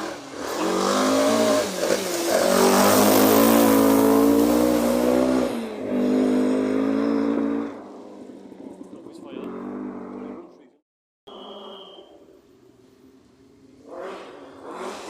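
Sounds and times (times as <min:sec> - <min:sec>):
rally car engine revving: 0:00.0 - 0:10.8, 0:13.7 - 0:15.0.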